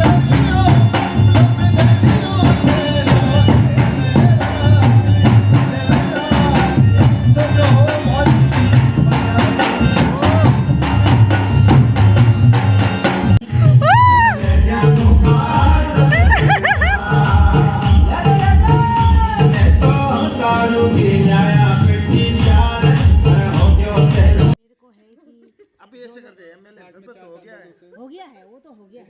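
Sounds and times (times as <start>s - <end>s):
deep drum beat: 0.0s - 20.1s, 21.8s - 24.6s
clacking percussion rhythm: 0.0s - 24.6s.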